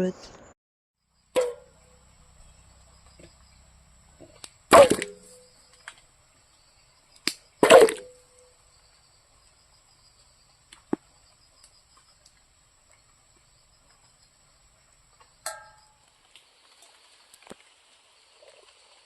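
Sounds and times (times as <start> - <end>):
metal cookware clanks: 15.4 - 15.9.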